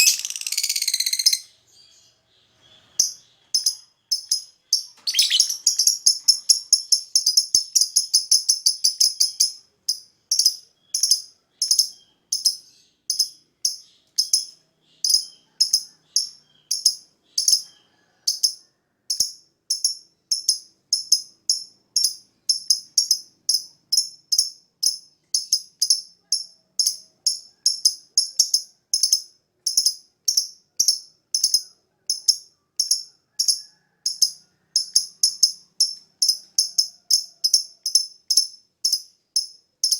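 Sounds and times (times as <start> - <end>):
lovebird chirping: 0.0 - 17.9.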